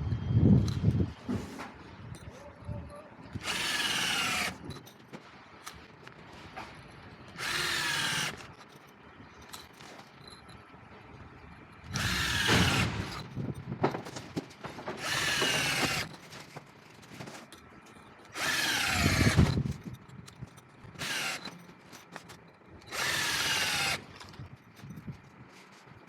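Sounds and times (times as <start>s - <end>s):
power drill driving screws into brick: 3.4s - 4.9s, 7.4s - 8.6s, 11.9s - 13.3s, 15.0s - 16.3s, 18.3s - 19.9s, 20.9s - 21.6s, 22.2s - 24.5s.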